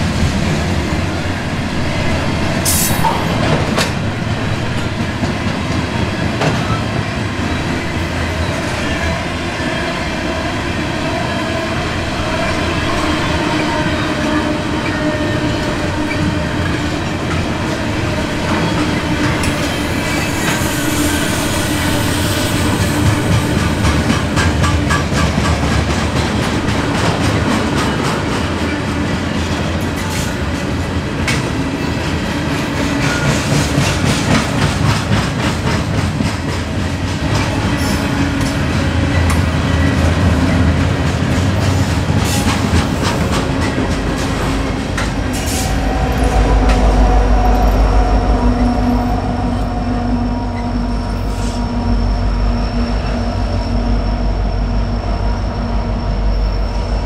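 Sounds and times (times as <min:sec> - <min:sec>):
train wheels clattering over rail joints: 0:22.7 - 0:28.8, 0:32.6 - 0:45.8
diesel locomotive engine rumble: 0:32.7 - 0:57.0.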